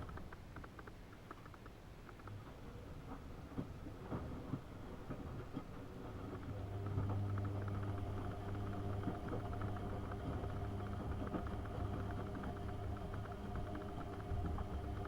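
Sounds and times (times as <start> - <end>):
light clicks and rattles: 0.0 - 15.0
washing machine motor hum: 3.0 - 15.0.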